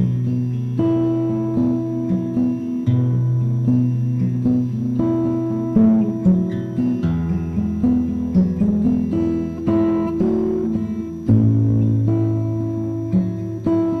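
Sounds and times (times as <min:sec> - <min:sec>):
acoustic guitar melody: 0:00.0 - 0:14.0.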